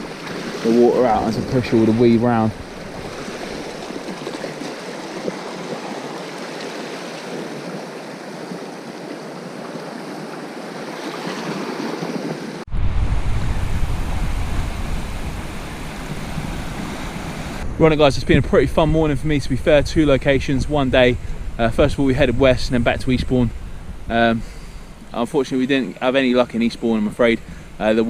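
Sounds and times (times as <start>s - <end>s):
wind rumbling on microphone: 0.0s - 6.4s, 12.2s - 28.0s
sea washing over rocks: 0.0s - 17.6s.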